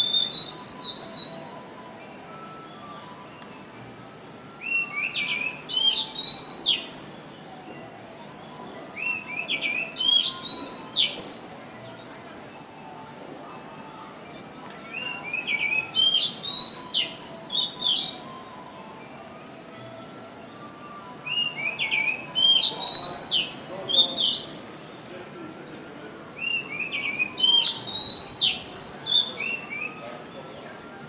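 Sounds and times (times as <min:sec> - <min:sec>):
songbird twittering: 0:00.0 - 0:01.6, 0:02.3 - 0:07.2, 0:08.2 - 0:12.3, 0:14.3 - 0:18.4, 0:21.2 - 0:24.8, 0:26.4 - 0:30.0.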